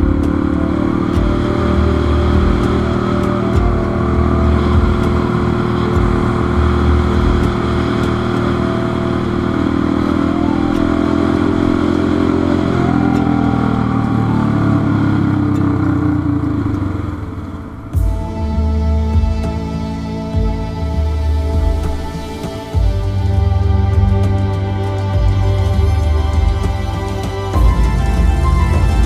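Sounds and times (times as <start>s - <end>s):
motorcycle engine running: 0.0s - 29.0s
music: 0.0s - 29.0s.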